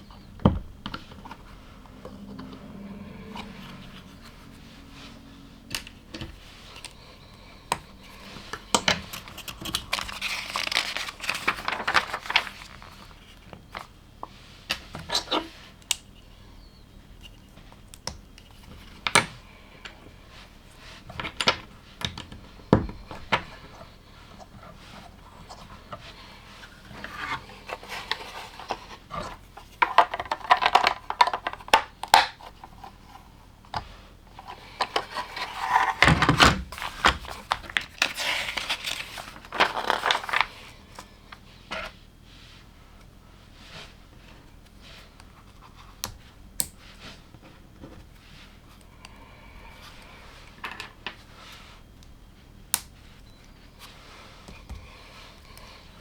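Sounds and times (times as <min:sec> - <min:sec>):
rustling: 0:00.0 - 0:15.8, 0:20.2 - 0:46.0
plastic bricks clicking and rattling: 0:27.8 - 0:32.4.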